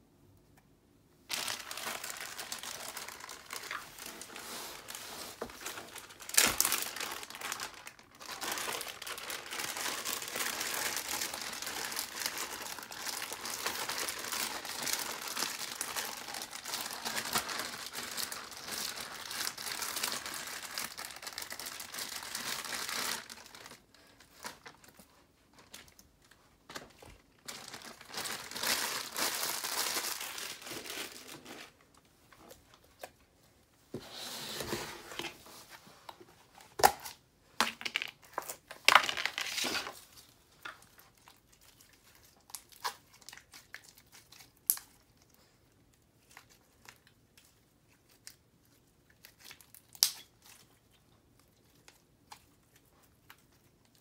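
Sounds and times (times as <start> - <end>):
plastic bag crinkling: 1.3 - 32.8, 37.6 - 44.9.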